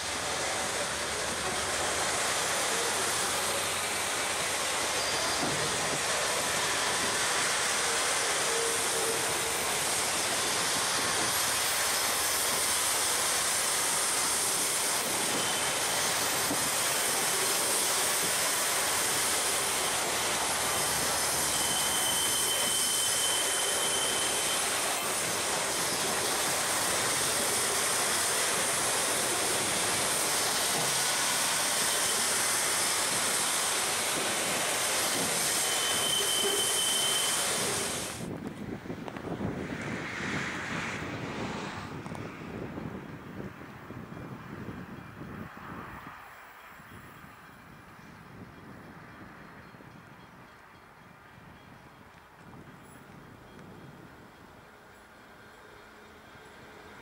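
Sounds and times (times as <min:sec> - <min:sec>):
freight wagons rolling on rails: 0:00.0 - 0:39.6
high squeal: 0:01.2 - 0:38.3.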